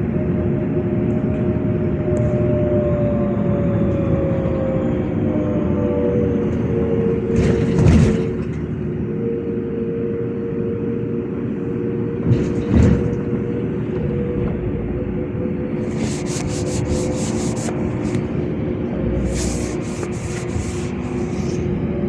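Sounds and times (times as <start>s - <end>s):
bus drivetrain hum and whine: 0.0s - 22.0s
road noise: 15.6s - 22.0s.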